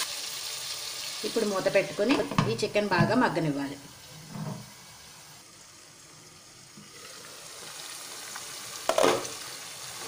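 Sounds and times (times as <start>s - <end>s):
chicken sizzling in a pan: 0.0s - 10.0s.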